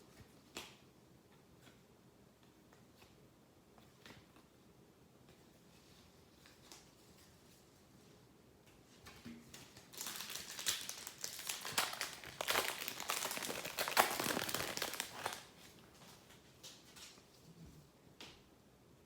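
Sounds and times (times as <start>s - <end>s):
foil wrapper crinkling: 9.7s - 15.8s.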